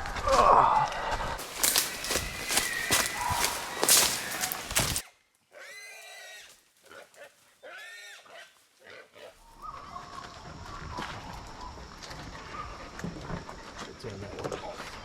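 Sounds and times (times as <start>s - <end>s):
crunching through dry scrub: 1.4s - 5.0s.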